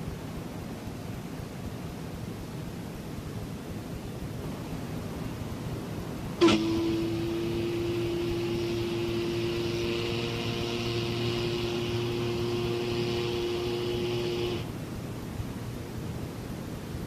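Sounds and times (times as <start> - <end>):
hiss: 6.4 - 14.7
ship's whistle long blast: 6.4 - 14.7.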